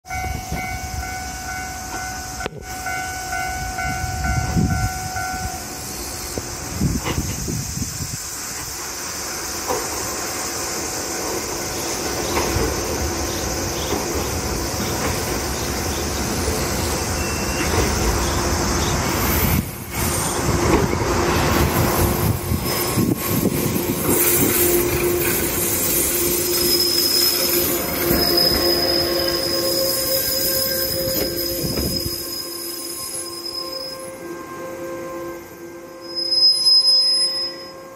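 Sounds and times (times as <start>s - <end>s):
electric train rumbling: 0.0s - 37.9s
steady squealing tones: 11.7s - 37.9s.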